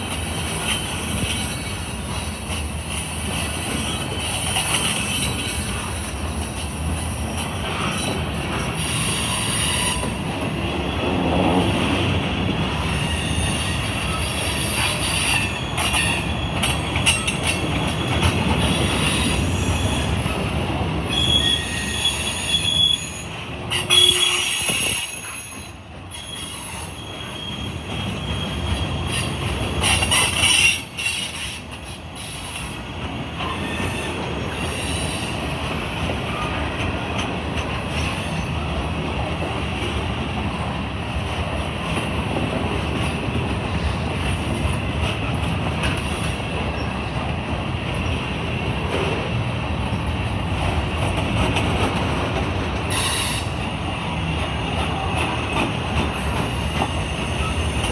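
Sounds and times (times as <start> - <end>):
steel wheels rumbling on rail: 0.0 - 57.9
high-pitched wheel squeals: 21.1 - 31.6.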